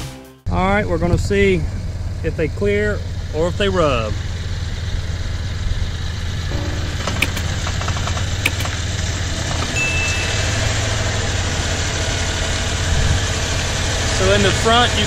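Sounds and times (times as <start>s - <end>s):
car engine idling: 1.3s - 15.0s
sharp click: 6.5s - 8.8s.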